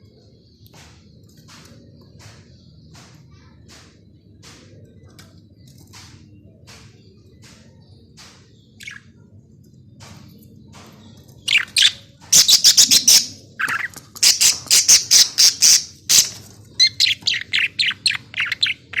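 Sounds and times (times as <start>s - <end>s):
budgerigars chirping and squawking: 10.7s - 19.0s.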